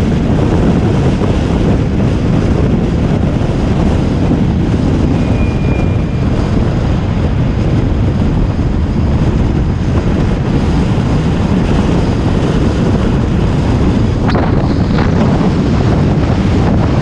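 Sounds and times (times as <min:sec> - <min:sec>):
bus engine and road noise: 0:00.0 - 0:17.0
wind buffeting microphone: 0:00.0 - 0:17.0.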